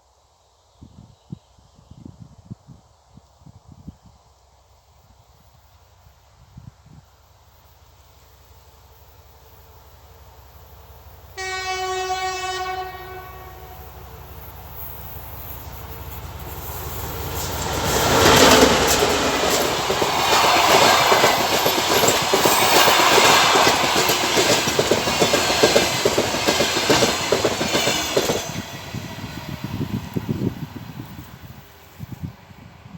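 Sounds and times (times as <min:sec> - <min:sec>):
diesel locomotive passing: 0:07.2 - 0:32.9
locomotive horn blast: 0:11.4 - 0:13.9
train coaches clattering over rails: 0:15.2 - 0:29.6.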